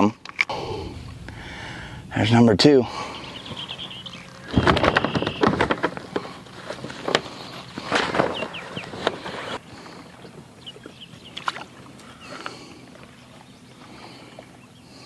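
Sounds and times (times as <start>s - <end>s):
water sloshing: 2.9s - 14.8s.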